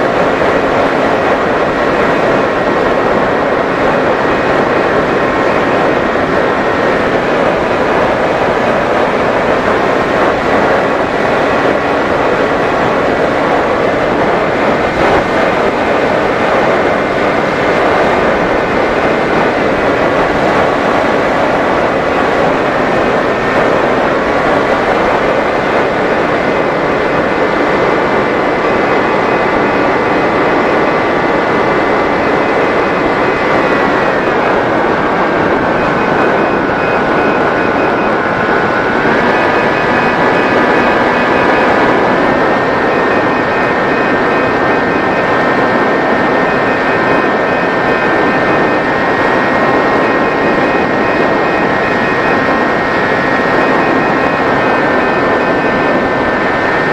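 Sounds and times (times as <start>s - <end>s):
heavy rushing noise: 0.0s - 56.9s
model plane motor whine: 0.1s - 56.9s.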